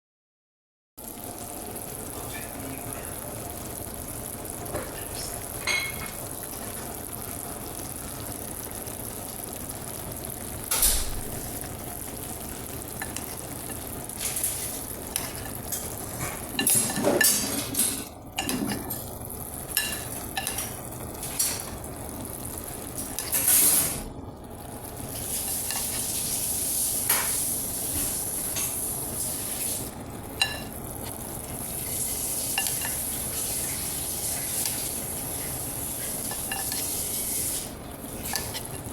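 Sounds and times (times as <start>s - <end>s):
food sizzling in a frying pan: 1.0s - 38.9s
utensil stirring and scraping: 13.0s - 19.0s, 25.1s - 29.8s, 30.4s - 38.9s.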